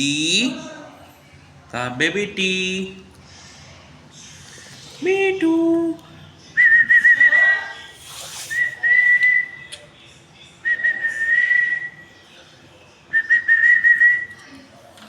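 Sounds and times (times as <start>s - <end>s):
high whistles: 8.1s - 9.8s.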